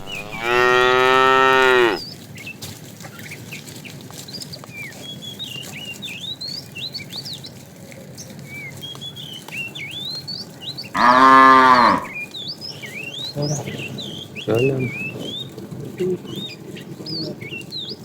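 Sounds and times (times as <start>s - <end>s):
cow mooing: 0.0s - 2.0s, 11.0s - 12.2s
small birds chirping: 0.0s - 18.0s.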